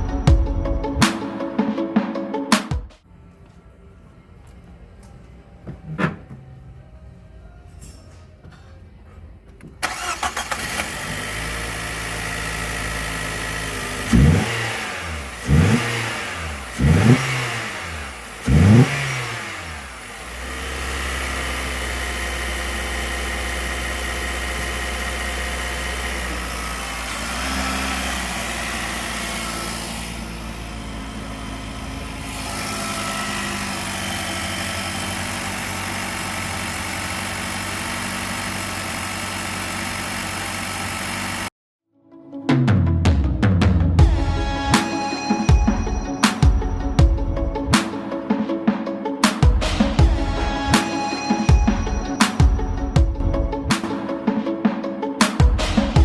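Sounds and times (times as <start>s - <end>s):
car engine starting and idling: 3.1s - 7.6s, 8.2s - 41.5s
car engine revving in quick blips: 9.8s - 41.5s.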